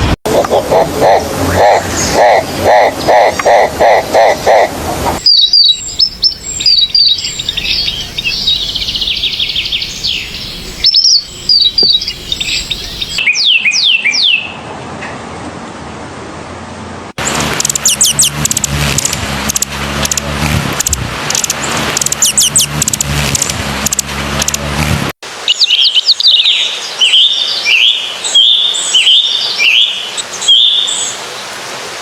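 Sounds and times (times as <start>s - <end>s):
low hum and hiss: 0.4s - 13.2s
birds chirping and whistling: 5.2s - 14.6s, 17.8s - 18.4s, 22.2s - 22.8s, 25.5s - 31.2s.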